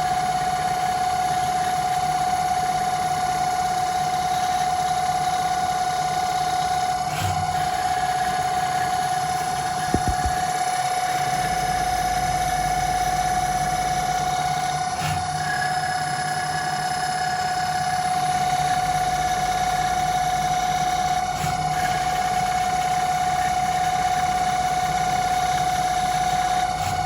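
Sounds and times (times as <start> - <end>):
lathe running with high whine: 0.0 - 27.0
short knock: 9.9 - 10.4.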